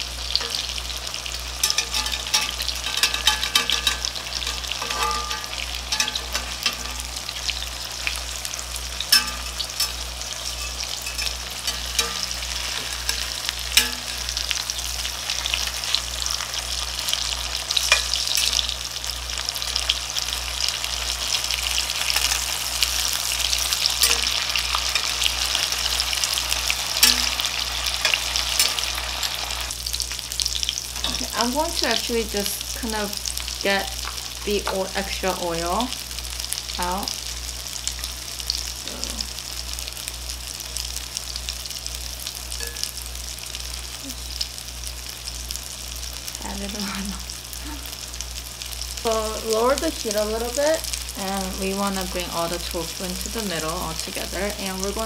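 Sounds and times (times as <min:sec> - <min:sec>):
tofu sizzling in hot oil: 0:00.0 - 0:55.0
spatula and fork clicking on pan: 0:01.6 - 0:07.2, 0:09.0 - 0:14.4, 0:17.2 - 0:18.7, 0:21.9 - 0:29.4.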